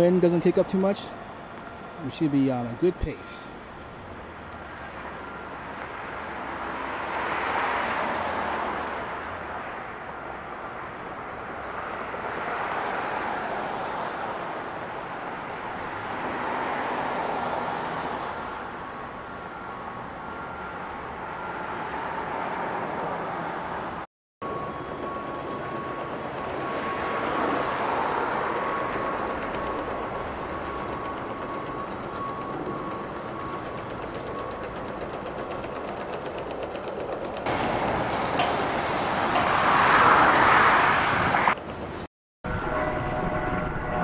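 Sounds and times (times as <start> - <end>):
cars passing: 5.0 - 19.3, 37.5 - 44.0.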